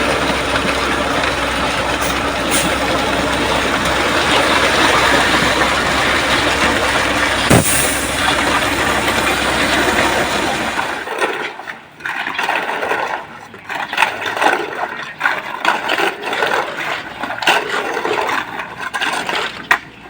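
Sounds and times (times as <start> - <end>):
truck engine humming: 0.0 - 11.2
wet concrete splashing out: 0.0 - 11.3.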